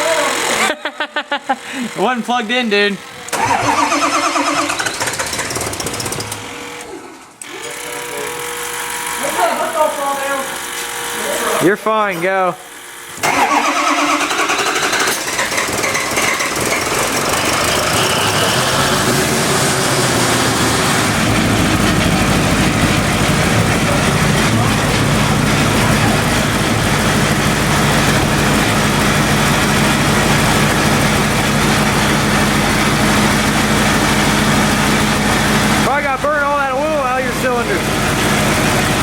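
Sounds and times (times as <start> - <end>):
turbo whine: 0.0 - 39.0
diesel truck engine idling: 16.5 - 39.0.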